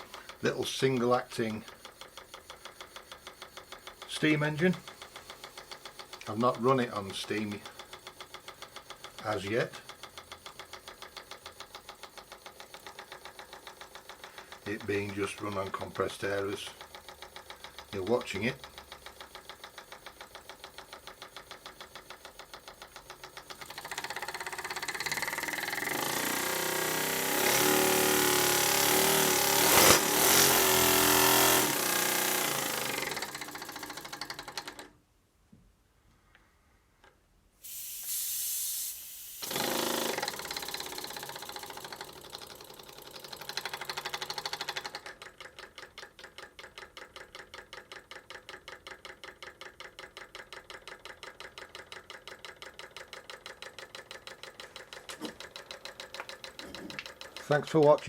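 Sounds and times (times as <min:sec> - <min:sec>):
model air engine puffing: 0:00.0 - 0:18.8, 0:37.6 - 0:45.0.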